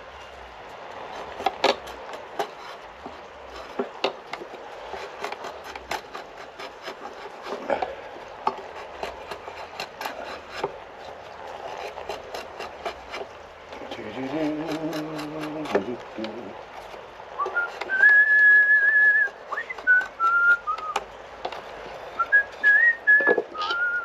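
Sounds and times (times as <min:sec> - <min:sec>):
blade scraping wood: 0:00.0 - 0:24.0
wood knocking: 0:19.5 - 0:23.9.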